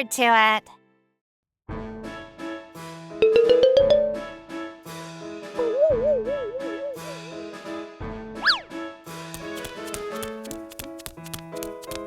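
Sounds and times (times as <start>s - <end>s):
cheerful keyboard music: 3.0s - 12.0s.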